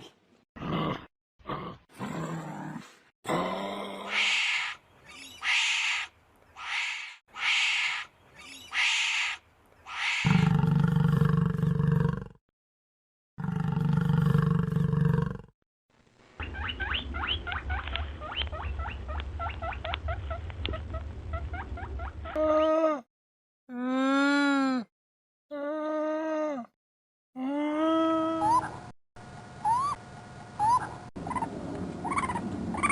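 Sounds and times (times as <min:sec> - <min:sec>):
short repeated animal cries: 0:04.1 - 0:10.4.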